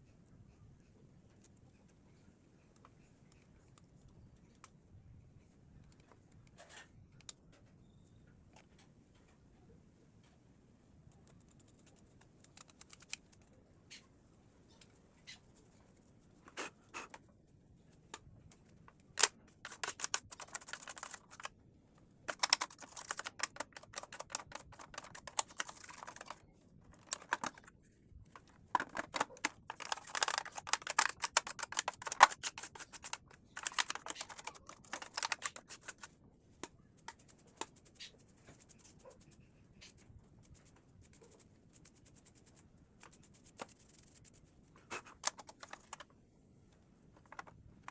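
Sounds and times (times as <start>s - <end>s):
plastic parts clicking and rattling: 11.2s - 13.5s, 18.0s - 21.6s, 22.3s - 38.8s, 44.9s - 46.1s, 47.1s - 47.9s.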